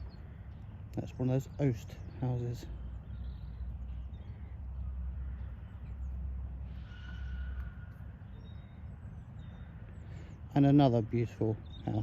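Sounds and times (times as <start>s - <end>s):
crow cawing: 4.3s - 5.9s, 6.6s - 8.4s.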